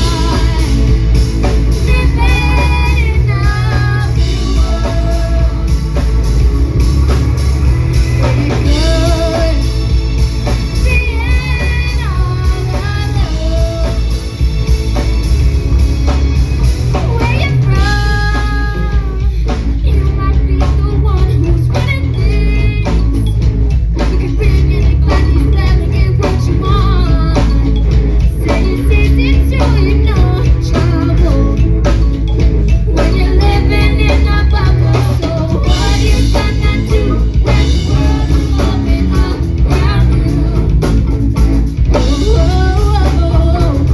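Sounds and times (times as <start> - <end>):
person singing: 0.0 - 7.3, 7.9 - 14.4, 32.8 - 41.2, 41.9 - 43.9
drum kit: 0.0 - 43.9
heavy bass: 0.0 - 43.9.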